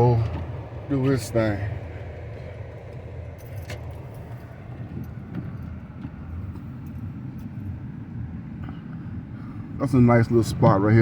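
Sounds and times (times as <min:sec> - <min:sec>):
car engine and road rumble: 0:00.0 - 0:11.0
light clicks and jingles: 0:02.3 - 0:07.8.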